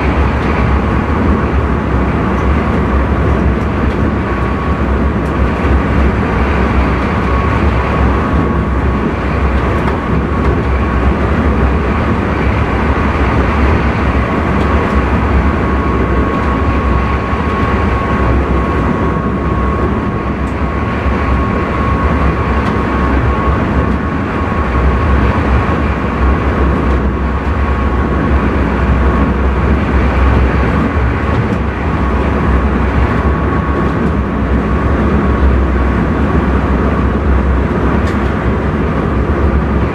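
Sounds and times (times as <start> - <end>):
thin steady whine: 0.0 - 39.9
train wheels rumbling: 0.0 - 39.9.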